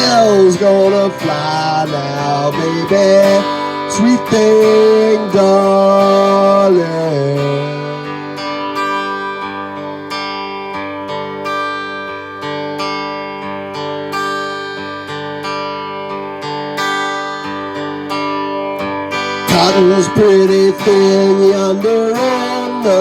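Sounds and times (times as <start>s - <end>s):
person singing: 0.0s - 8.6s, 19.2s - 23.0s
acoustic guitar plucked and strummed: 0.0s - 23.0s.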